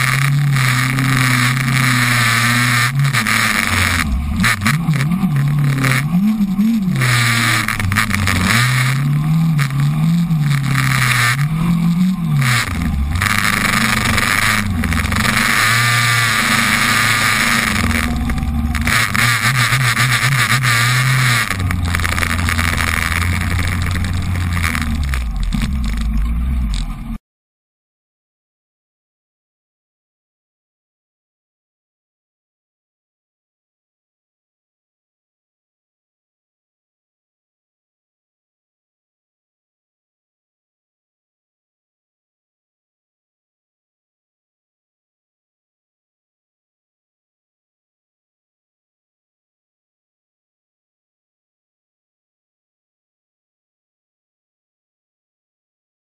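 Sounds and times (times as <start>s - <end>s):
motorcycle engine revving: 0.0s - 27.2s.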